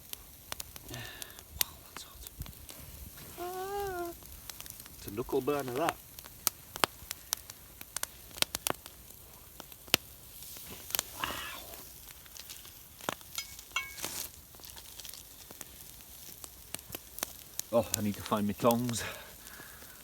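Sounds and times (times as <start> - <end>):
bacon frying in a pan: 0.0 - 20.0
ringing clink: 13.4 - 14.1.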